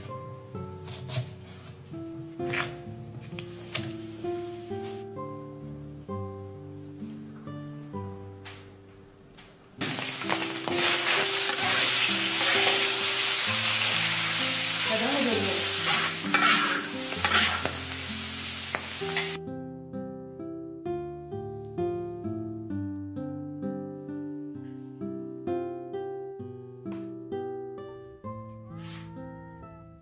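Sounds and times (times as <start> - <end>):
background music: 0.0 - 30.0
food sizzling in a pan: 9.8 - 19.4.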